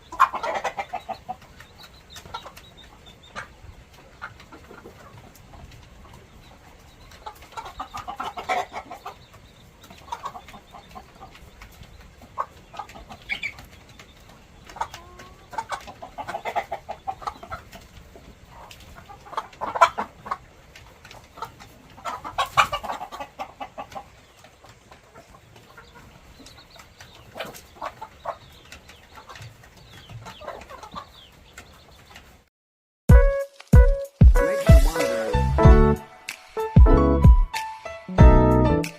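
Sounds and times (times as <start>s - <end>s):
chickens clucking: 0.0s - 32.5s, 33.4s - 38.9s.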